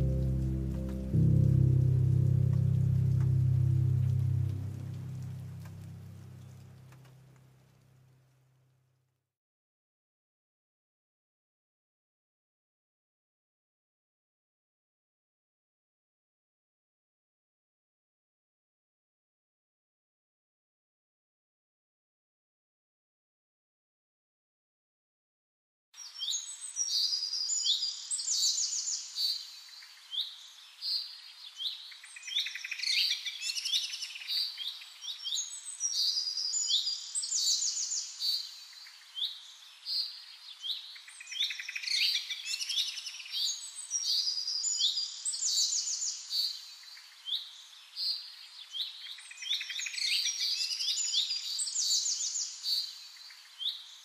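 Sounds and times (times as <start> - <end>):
small birds chirping and trilling: 26.0 - 54.0.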